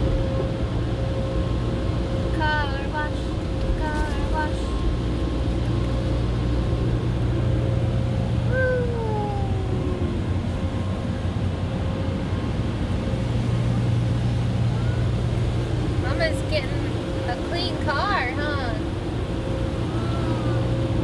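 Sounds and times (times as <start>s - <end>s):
car wash machinery hum: 0.0s - 21.0s
falling whine: 4.6s - 21.0s.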